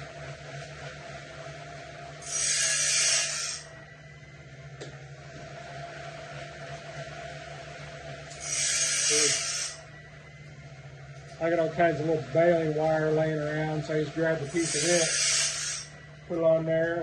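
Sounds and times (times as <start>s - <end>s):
motor hum: 0.0s - 17.0s
hissing rasping grind: 2.2s - 3.7s, 8.3s - 9.8s, 13.2s - 16.0s.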